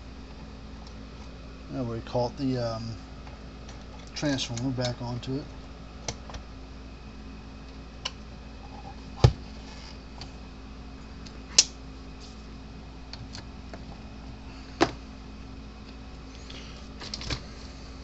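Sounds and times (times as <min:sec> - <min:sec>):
steady low hum: 0:00.0 - 0:18.0
clicks and knocks of parts handled: 0:17.0 - 0:17.4.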